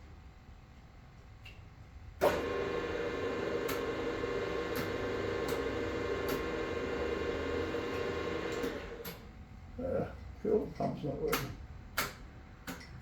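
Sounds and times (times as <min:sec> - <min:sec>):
electric motor humming: 0:02.2 - 0:09.0.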